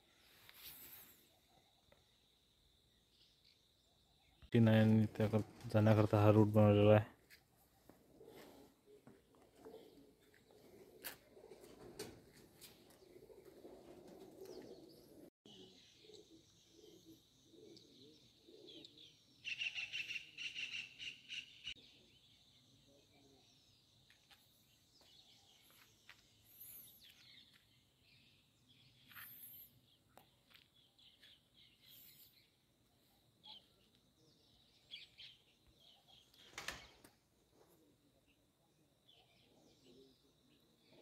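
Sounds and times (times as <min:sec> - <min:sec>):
faint bird chirps: 0:12.6 - 0:41.0.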